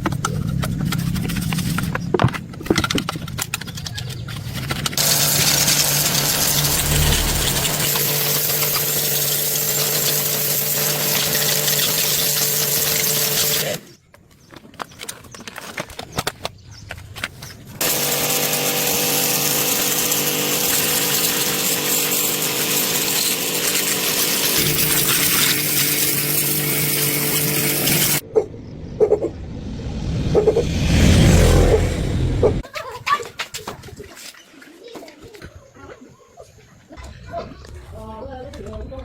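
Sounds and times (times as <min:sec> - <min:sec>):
electric power tool grinding: 0:04.7 - 0:13.9, 0:17.8 - 0:28.2.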